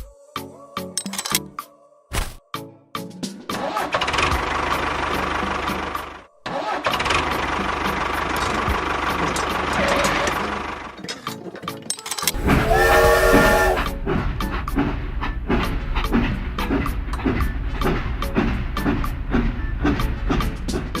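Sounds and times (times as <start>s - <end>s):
clicks before engine start: 3.9s - 12.4s
tractor engine running: 6.9s - 21.0s.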